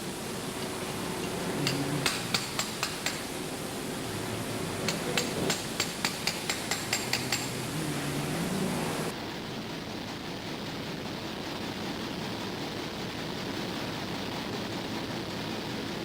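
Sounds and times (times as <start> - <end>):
steady background hiss: 0.0 - 16.0
hammer tapping on metal: 0.1 - 9.1.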